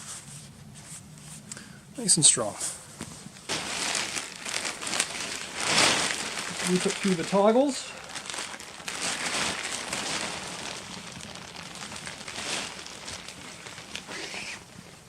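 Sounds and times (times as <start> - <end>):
tarp fabric rustling: 3.0 - 15.0.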